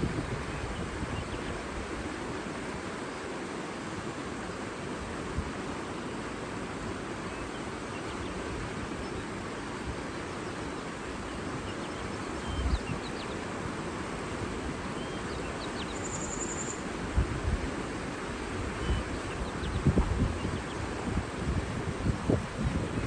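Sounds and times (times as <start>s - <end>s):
wind buffeting microphone: 0.0s - 2.0s, 17.0s - 23.0s
rushing water: 0.0s - 23.0s
bird chirps: 15.0s - 16.9s
high bird trill: 15.0s - 16.9s.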